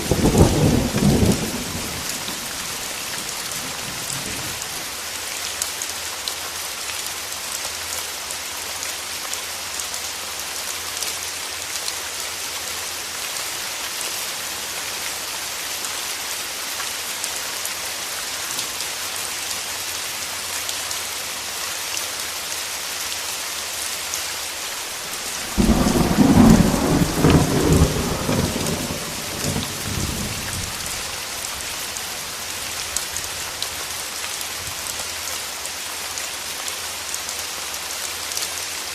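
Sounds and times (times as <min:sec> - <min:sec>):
thunder clap rumbling: 0:00.0 - 0:04.6, 0:25.2 - 0:31.1
steady rain falling: 0:00.0 - 0:38.9.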